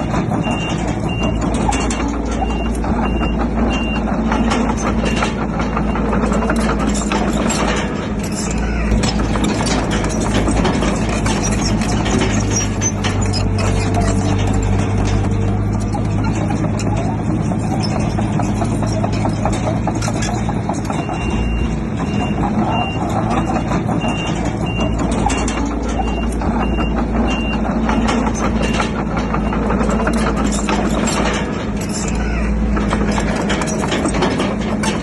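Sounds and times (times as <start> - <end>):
reversing alarm beeping: 0.0 - 6.8, 20.9 - 28.8
diesel engine running: 0.0 - 35.0
machinery clanking: 0.0 - 35.0.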